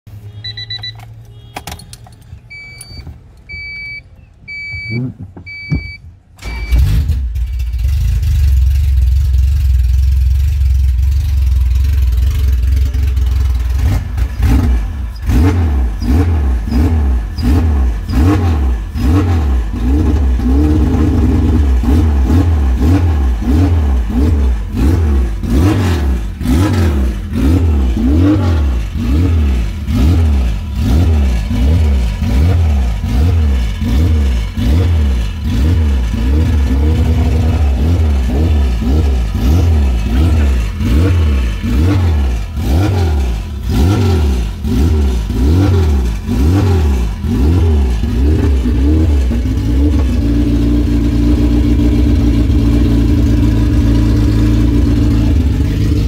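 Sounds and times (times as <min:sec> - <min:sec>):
short electronic beeps: 0:00.1 - 0:06.8
car engine starting and idling: 0:00.2 - 0:56.0
engine revving: 0:06.4 - 0:56.0.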